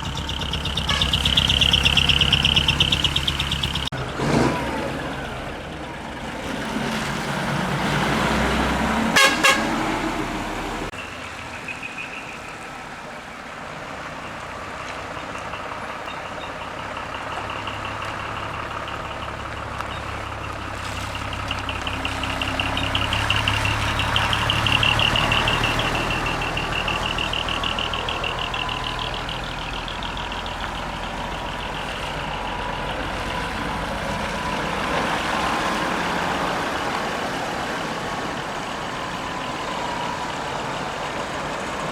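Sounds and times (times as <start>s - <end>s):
truck engine running: 0.0s - 41.9s
horn toots: 0.6s - 4.5s, 9.0s - 10.7s.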